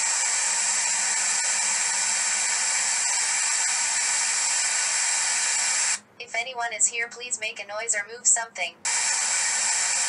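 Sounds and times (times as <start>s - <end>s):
white noise hiss: 0.0s - 6.0s, 8.9s - 10.0s.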